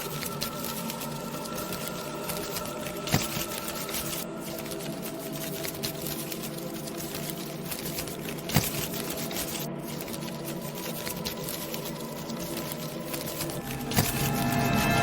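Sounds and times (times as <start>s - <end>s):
dense crackling and pattering: 0.0s - 15.0s.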